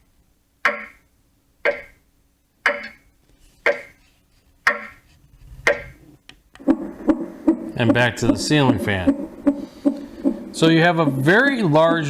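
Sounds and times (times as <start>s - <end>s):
clock ticking from small speaker: 0.6s - 2.0s, 2.6s - 3.0s, 3.6s - 4.0s, 4.7s - 5.0s, 5.7s - 6.0s.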